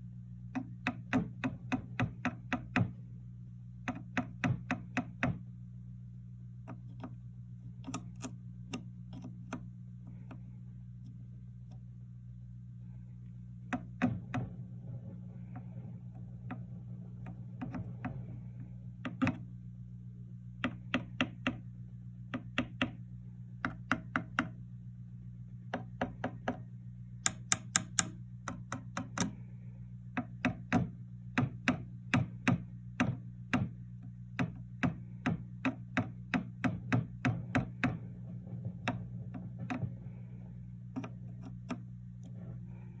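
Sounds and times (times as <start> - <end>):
amplifier low hum: 0.0 - 43.0
amplifier rumbling: 6.4 - 22.3, 36.8 - 43.0
chopstick tapping on amplifier: 27.2 - 29.4.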